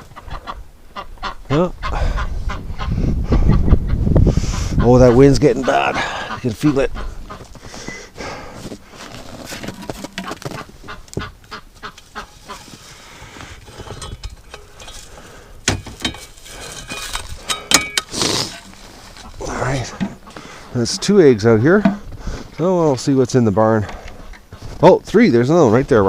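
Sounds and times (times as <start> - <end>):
geese honking: 0.0 - 3.1, 4.4 - 14.0, 18.1 - 22.0
wind noise: 0.0 - 8.4, 13.5 - 22.6
ducks quacking: 0.0 - 9.0, 9.8 - 13.9, 18.1 - 22.4.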